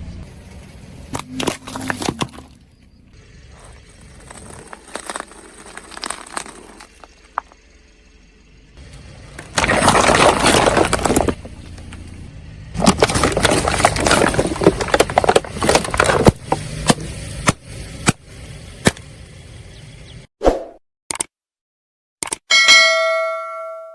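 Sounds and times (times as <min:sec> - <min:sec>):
car tyre crushing brittle objects: 0:01.1 - 0:19.3.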